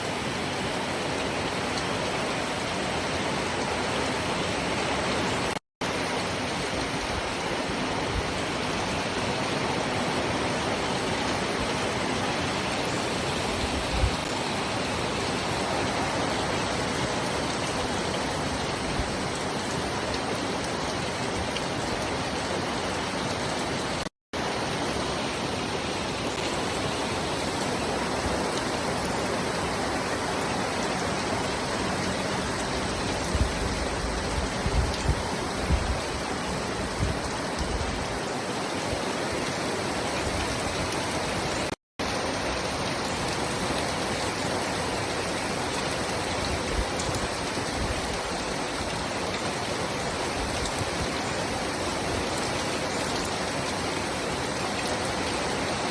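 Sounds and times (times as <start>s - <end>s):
steady rain hiss: 0.0s - 55.9s.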